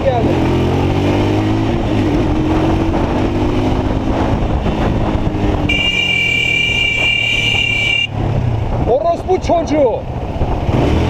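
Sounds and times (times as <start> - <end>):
motorcycle engine running: 0.0 - 9.1
wind noise: 0.0 - 11.0
high-pitched horn: 5.7 - 8.2.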